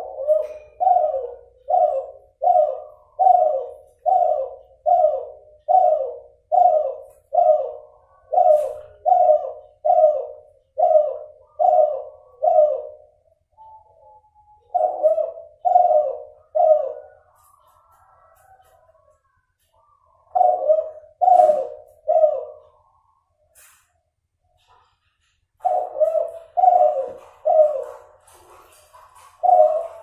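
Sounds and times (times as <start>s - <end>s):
dove cooing: 0.0s - 23.2s, 25.6s - 30.0s.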